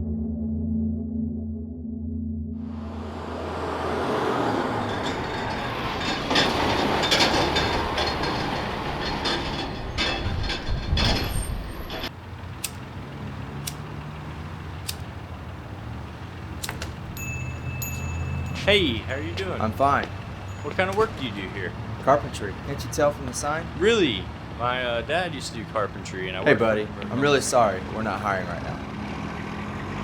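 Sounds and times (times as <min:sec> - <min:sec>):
vehicle passing with rushing noise: 0:02.6 - 0:30.0
sharp clicks: 0:12.6 - 0:14.0, 0:14.8 - 0:15.2, 0:16.6 - 0:17.1.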